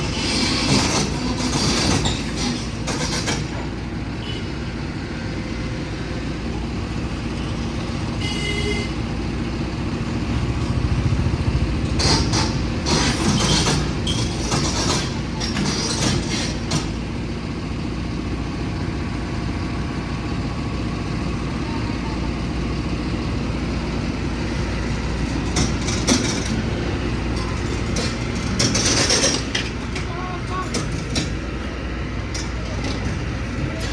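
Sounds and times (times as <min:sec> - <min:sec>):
heavy vehicle engine running: 0:00.0 - 0:33.9
road rumble: 0:00.0 - 0:33.9
rattling clatter: 0:25.2 - 0:31.4.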